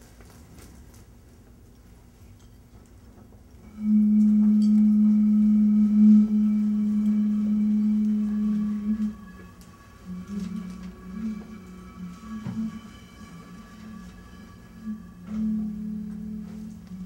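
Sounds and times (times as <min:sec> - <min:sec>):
low humming tone: 0:03.5 - 0:17.0.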